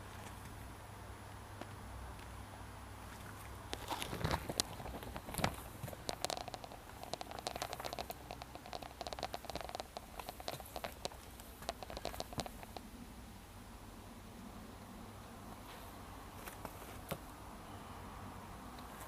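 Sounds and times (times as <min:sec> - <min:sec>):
low steady hum: 0:00.0 - 0:19.0
light clicks and taps: 0:03.7 - 0:12.9.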